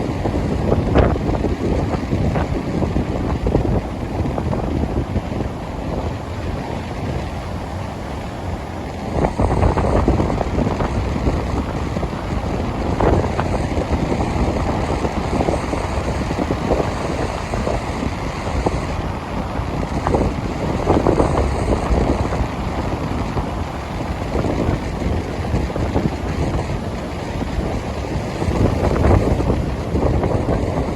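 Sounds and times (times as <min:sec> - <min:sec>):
ocean surf: 0:00.0 - 0:30.9
wind buffeting microphone: 0:00.0 - 0:30.9.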